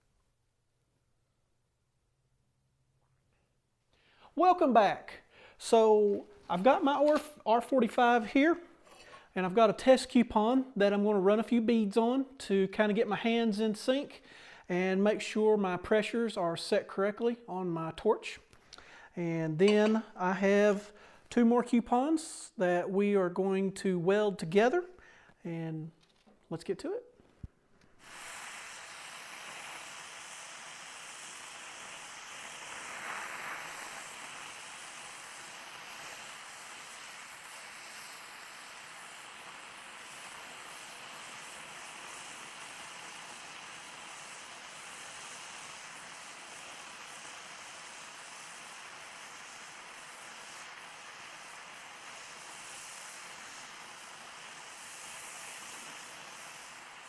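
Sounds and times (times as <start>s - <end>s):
welding torch flame hissing: 4.0s - 10.8s, 27.4s - 57.0s.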